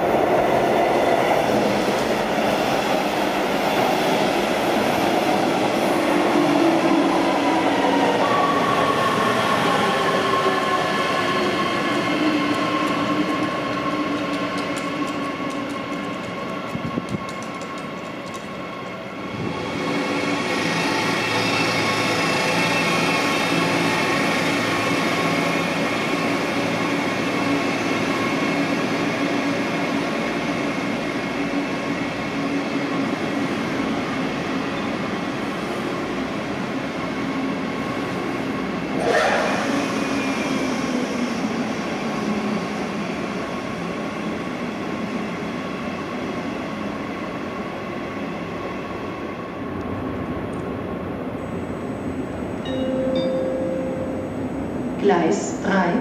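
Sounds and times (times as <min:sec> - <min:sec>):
train wheels and motors rumbling: 0:11.8 - 0:34.0
brief falling tone: 0:52.7 - 0:54.5.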